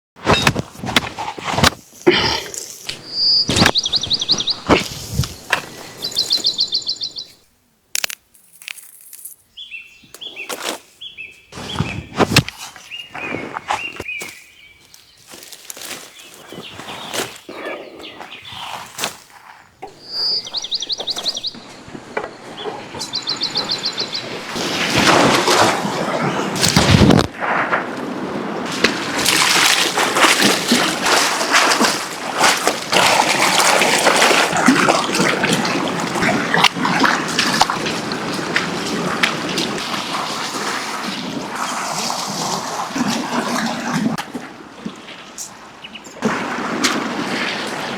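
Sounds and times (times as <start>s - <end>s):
birds chirping in trills: 2.9s - 7.5s, 12.8s - 18.8s, 19.8s - 24.5s.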